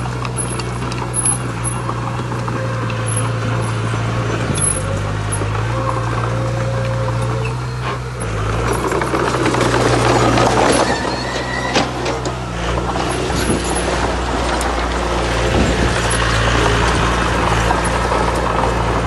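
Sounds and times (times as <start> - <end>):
diesel machinery engine running: 0.0 - 19.0.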